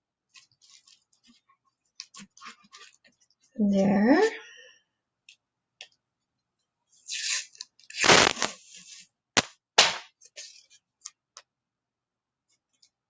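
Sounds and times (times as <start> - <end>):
tape ripping off roll: 7.1 - 10.2.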